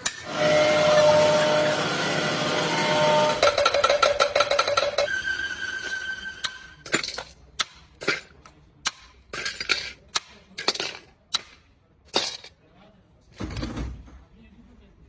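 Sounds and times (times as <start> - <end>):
metal tools clanking: 3.2 - 5.2, 5.8 - 8.5.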